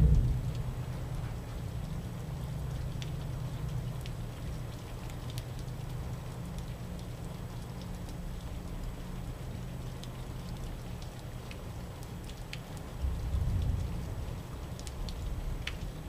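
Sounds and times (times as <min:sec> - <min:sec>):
low rumble: 0:00.0 - 0:01.9
steady rain falling: 0:00.0 - 0:16.0.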